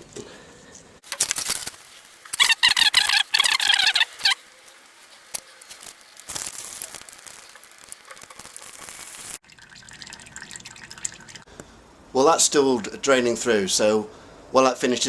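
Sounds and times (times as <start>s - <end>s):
oil trickling into pan: 6.7s - 11.5s.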